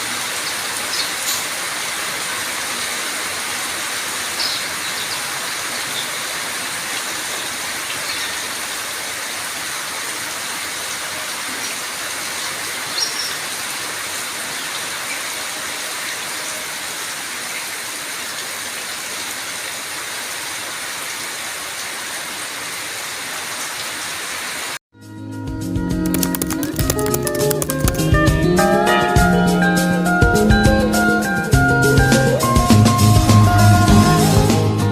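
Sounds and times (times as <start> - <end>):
steady rain hiss: 0.0 - 24.8.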